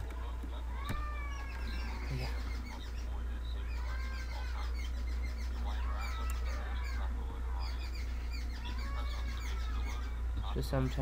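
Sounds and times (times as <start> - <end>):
birds chirping and calling: 0.0 - 11.0
steady low hum: 0.0 - 11.0.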